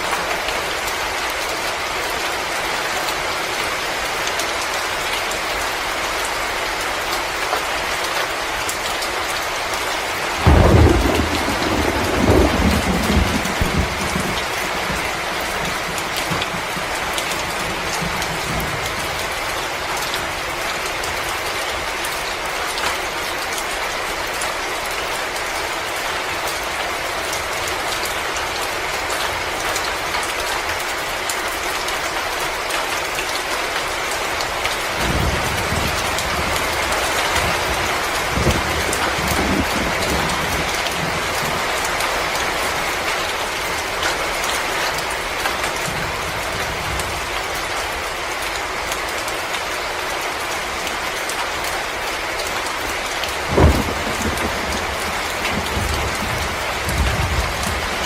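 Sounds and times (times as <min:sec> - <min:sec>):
heavy rain hissing: 0:09.3 - 0:21.1, 0:51.8 - 0:58.0
thunder rumbling: 0:10.4 - 0:19.2, 0:35.0 - 0:41.7, 0:53.4 - 0:58.0.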